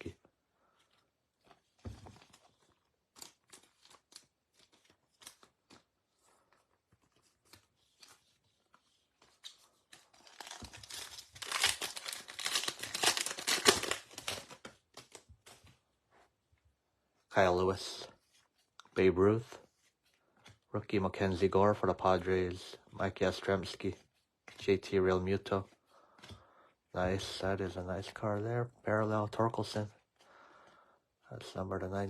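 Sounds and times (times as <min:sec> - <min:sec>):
cards clicking and rustling: 0:00.8 - 0:15.8
card pack wrapper tearing: 0:10.0 - 0:15.3.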